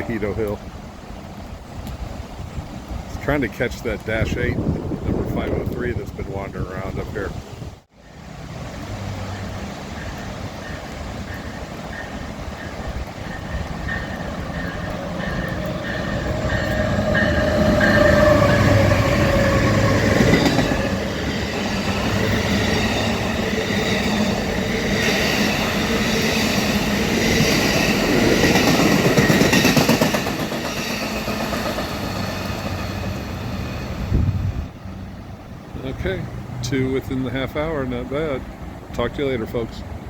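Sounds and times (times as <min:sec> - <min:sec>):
diesel locomotives passing: 0:00.0 - 0:40.0
passenger cars rolling past: 0:08.0 - 0:40.0.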